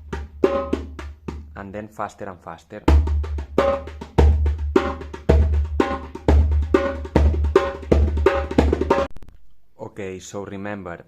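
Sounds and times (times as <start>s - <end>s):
djembe rhythm: 0.0s - 1.6s, 2.9s - 9.1s.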